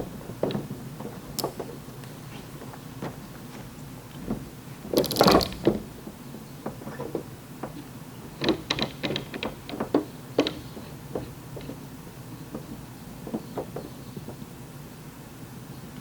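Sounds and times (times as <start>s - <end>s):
sharp clicks: 5.0s - 5.8s
metal clatter and clicks: 5.0s - 5.9s.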